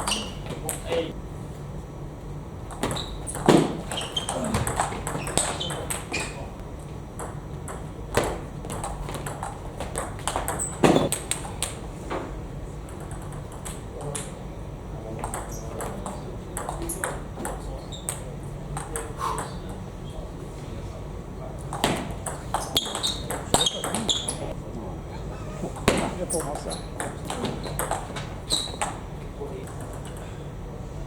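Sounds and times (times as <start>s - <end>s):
table tennis ball clicking: 12.9s - 14.3s.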